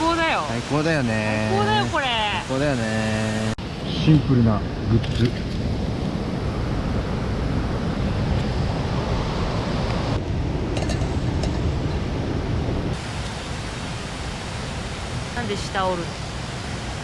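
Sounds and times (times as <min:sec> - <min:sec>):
mountain stream rushing: 0:00.0 - 0:04.3, 0:05.3 - 0:17.0.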